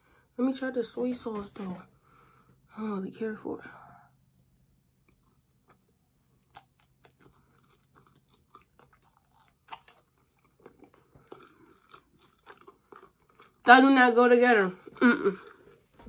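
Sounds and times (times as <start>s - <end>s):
person chewing: 4.1s - 13.7s.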